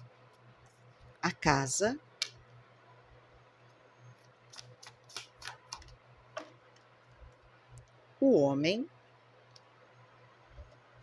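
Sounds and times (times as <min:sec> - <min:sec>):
low steady hum: 0:00.0 - 0:11.0
cards clicking and tapping: 0:04.5 - 0:06.6.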